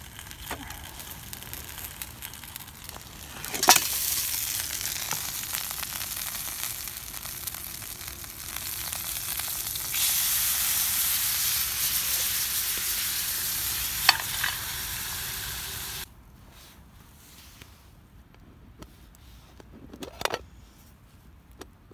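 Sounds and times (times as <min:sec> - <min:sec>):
food sizzling in a pan: 0:00.0 - 0:16.1.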